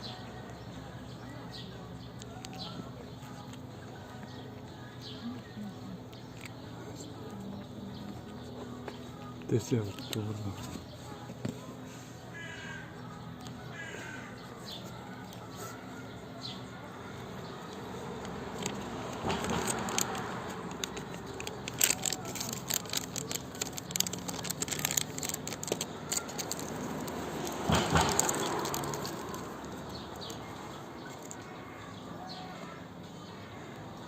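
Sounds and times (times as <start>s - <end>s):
vehicles passing: 0.0s - 34.0s
sharp crackling clicks: 17.7s - 31.4s.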